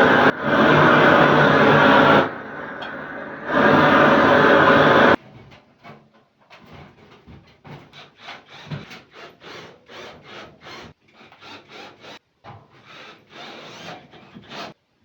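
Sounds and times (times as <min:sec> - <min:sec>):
hand saw cutting wood: 0:07.6 - 0:14.8.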